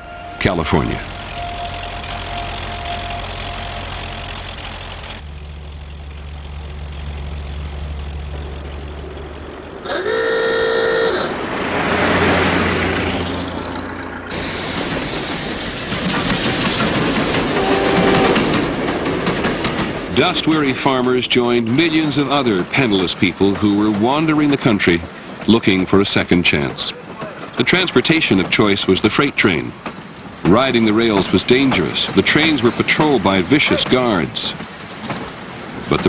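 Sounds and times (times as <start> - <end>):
train whistle blast: 0.0 - 4.4, 9.8 - 11.4, 17.6 - 18.5
train low rumble: 0.0 - 36.0
train rushing noise: 0.0 - 36.0.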